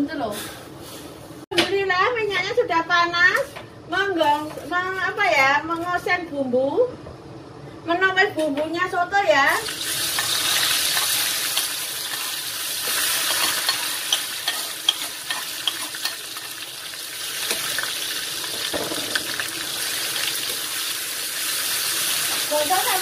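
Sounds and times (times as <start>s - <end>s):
paste sizzling in hot oil: 9.6s - 23.0s
metal spatula scraping a pan: 10.0s - 16.5s.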